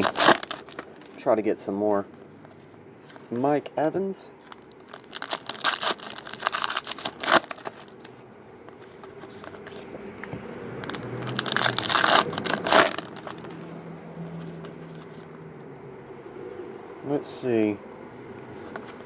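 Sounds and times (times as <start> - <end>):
wrappers crinkling and tearing: 0.0 - 1.3, 4.5 - 8.1, 10.8 - 13.6.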